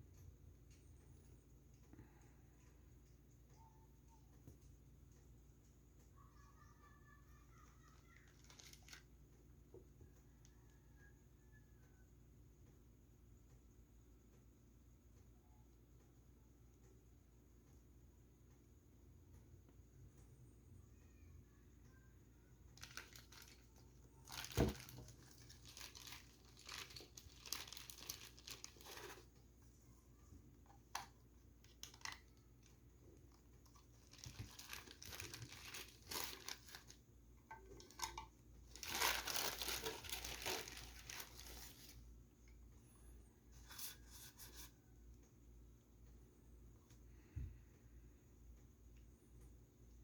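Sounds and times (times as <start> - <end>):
packaging crinkling and tearing: 7.8 - 9.1, 22.8 - 29.4, 30.9 - 32.7, 33.6 - 37.0, 37.7 - 42.0.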